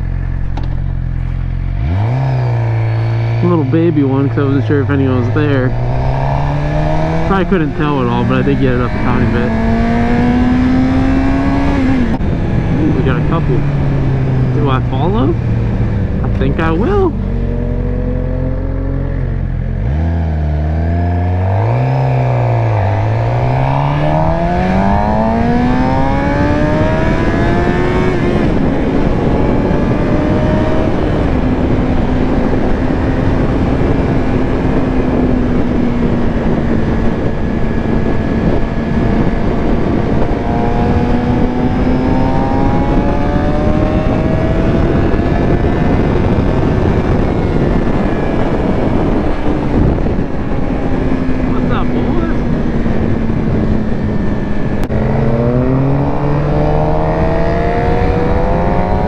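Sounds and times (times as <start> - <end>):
motorcycle engine accelerating: 0.0 - 59.0
wind noise: 0.0 - 59.0.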